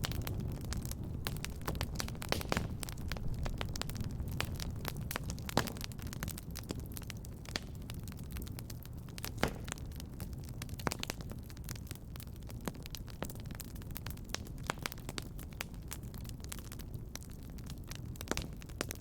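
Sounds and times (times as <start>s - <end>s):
low steady rumble: 0.0s - 5.5s
wood fire crackling: 0.0s - 19.0s.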